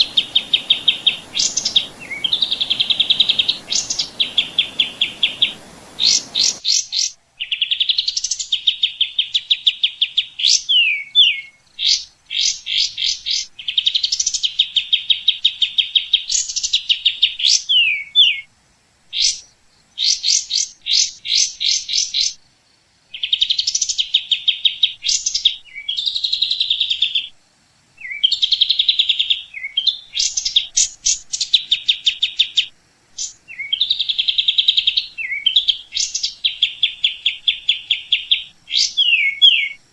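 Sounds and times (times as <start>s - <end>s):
songbirds trilling and chirping: 0.0s - 18.5s, 28.0s - 39.9s.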